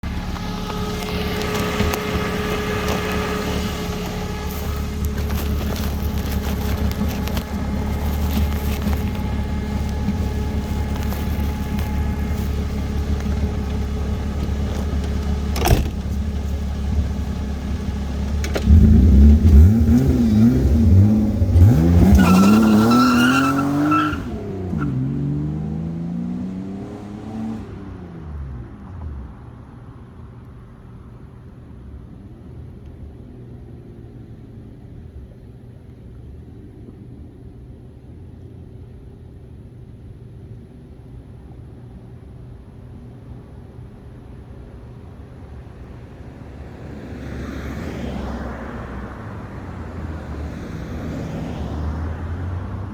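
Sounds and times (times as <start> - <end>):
car accelerating past: 0.0 - 14.0, 18.4 - 29.5.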